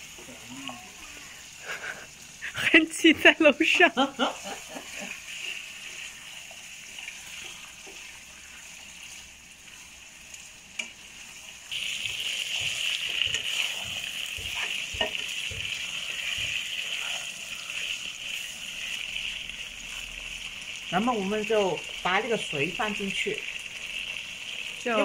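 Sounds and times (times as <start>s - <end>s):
chicken sizzling in hot oil: 0.0s - 25.0s.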